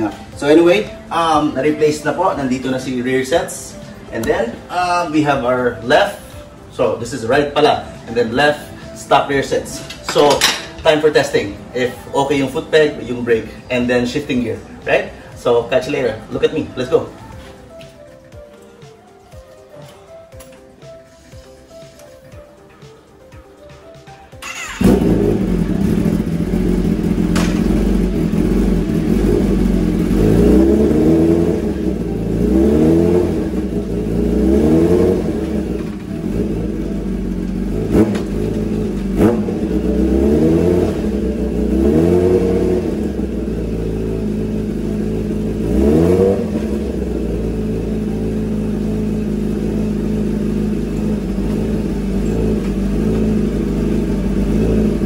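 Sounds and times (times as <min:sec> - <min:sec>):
motorcycle engine revving: 0:24.4 - 0:55.0.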